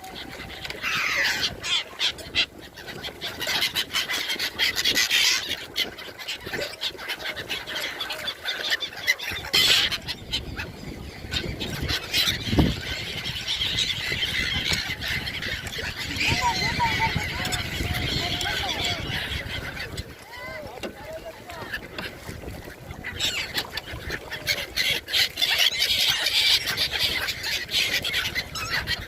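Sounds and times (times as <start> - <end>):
flock of gulls calling: 0.0 - 29.0.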